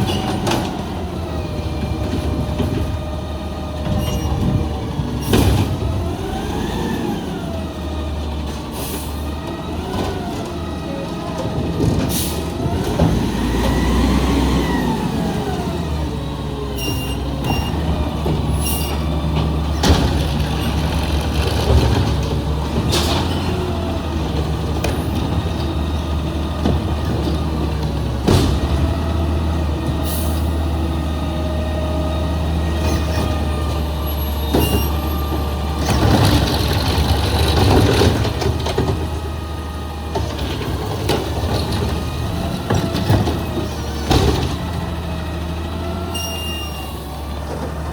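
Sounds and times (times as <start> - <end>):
garbage truck diesel engine: 0.0 - 47.9
air brakes hissing: 8.7 - 9.2, 12.1 - 12.5.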